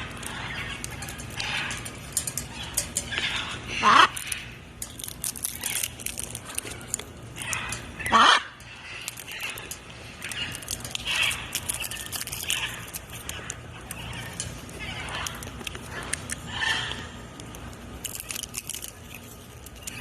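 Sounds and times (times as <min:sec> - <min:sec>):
macaw squawking: 0:00.0 - 0:04.6, 0:06.9 - 0:17.3.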